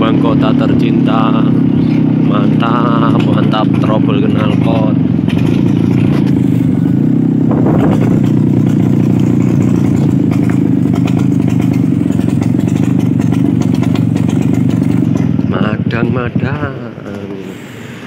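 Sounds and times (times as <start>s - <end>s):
scooter engine running: 0.0s - 18.0s
person speaking: 15.5s - 17.9s.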